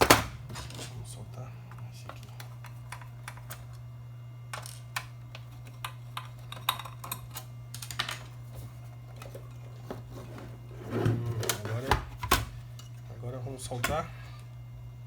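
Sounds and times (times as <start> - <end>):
screwdriver and metal parts clicking: 4.5 - 8.3.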